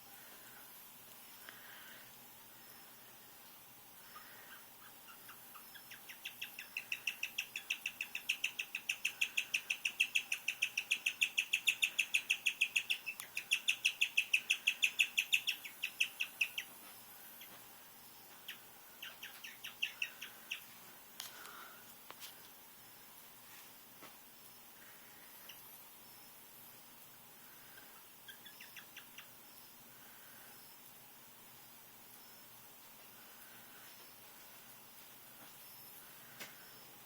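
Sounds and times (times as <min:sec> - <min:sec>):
guinea pig chirping: 0:04.1 - 0:17.6, 0:18.2 - 0:20.8, 0:27.9 - 0:29.7.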